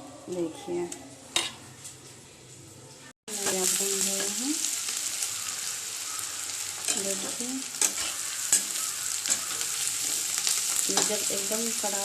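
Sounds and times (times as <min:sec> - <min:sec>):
onions sizzling in hot oil: 0:03.3 - 0:12.0.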